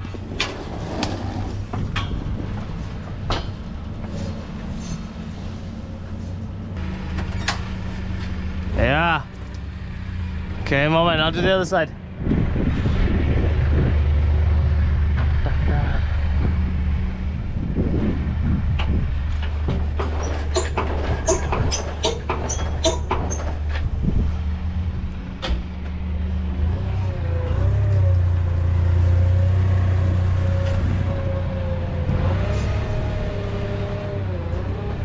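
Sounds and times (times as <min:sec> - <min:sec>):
vehicle engine running: 0:01.4 - 0:35.0
sharp metallic clicks and knocks: 0:18.8 - 0:23.9.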